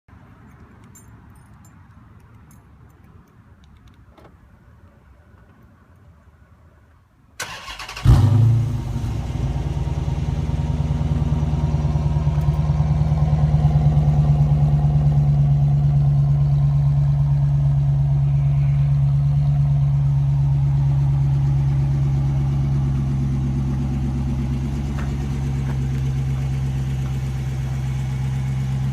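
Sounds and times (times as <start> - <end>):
car engine cranking and starting: 7.4 - 18.2, 18.9 - 28.9
car engine idling: 7.4 - 28.9.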